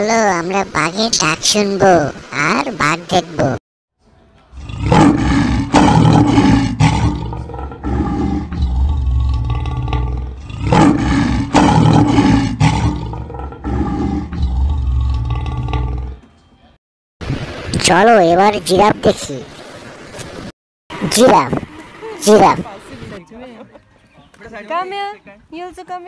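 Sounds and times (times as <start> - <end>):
tiger roaring and growling: 4.5 - 16.2.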